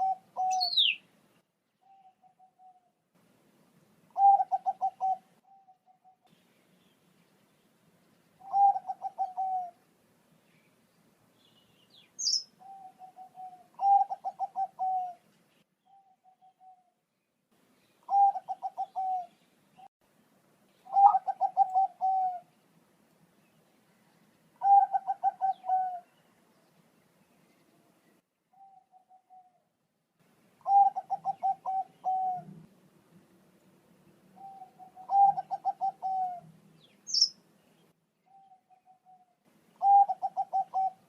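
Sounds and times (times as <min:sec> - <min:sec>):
soft short dove coos: 0:08.4 - 0:09.8, 0:20.9 - 0:22.5, 0:30.6 - 0:32.6, 0:34.4 - 0:36.4, 0:38.3 - 0:41.0
dove stuttering coos: 0:30.6 - 0:32.6, 0:34.6 - 0:36.4, 0:39.8 - 0:41.0.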